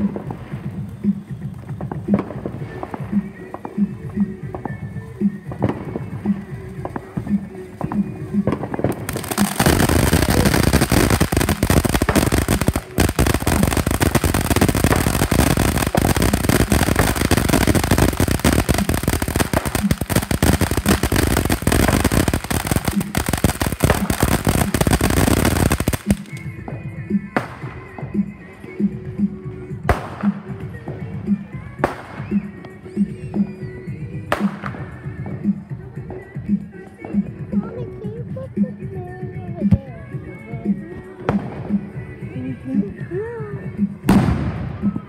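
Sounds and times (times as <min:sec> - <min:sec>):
fireworks crackling: 0:00.0 - 0:38.3
faint music with steady beat: 0:00.0 - 0:45.0.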